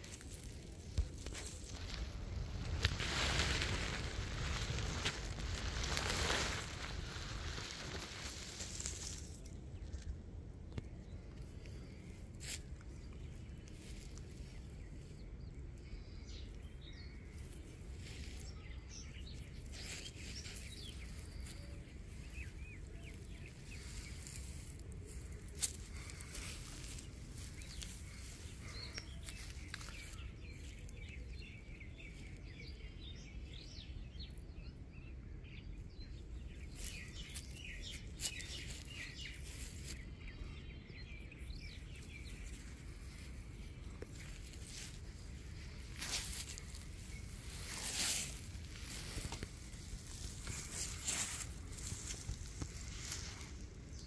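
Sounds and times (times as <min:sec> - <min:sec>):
faint bird chirps: 0:00.0 - 0:54.0
low steady background noise: 0:00.0 - 0:54.0.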